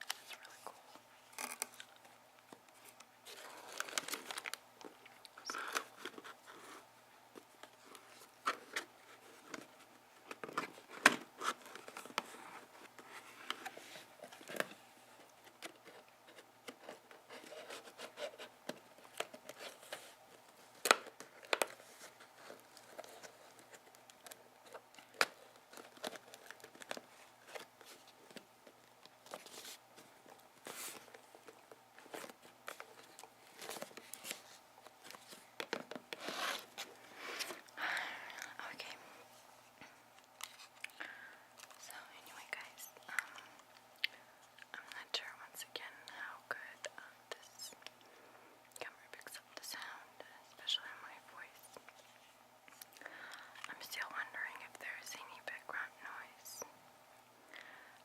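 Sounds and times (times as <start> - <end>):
packaging crinkling and tearing: 2.9 - 6.2, 20.8 - 28.4.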